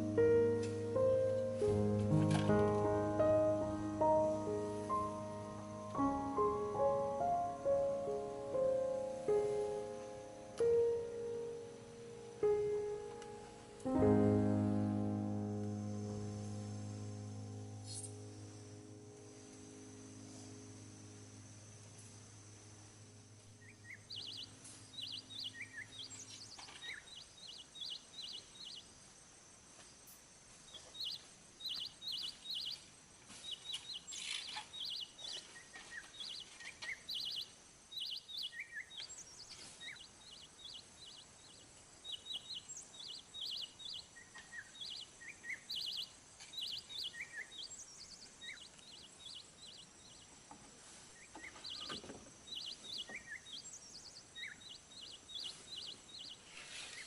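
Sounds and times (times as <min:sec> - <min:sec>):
small birds chirping: 0:00.0 - 0:57.0
lower bird calls: 0:15.9 - 0:28.9, 0:30.6 - 0:57.0.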